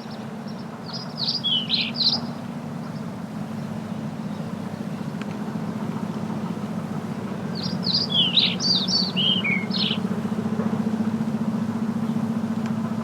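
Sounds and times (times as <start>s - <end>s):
songbird chirping: 0.0s - 3.1s, 7.5s - 10.1s
low engine-like hum: 0.0s - 13.0s.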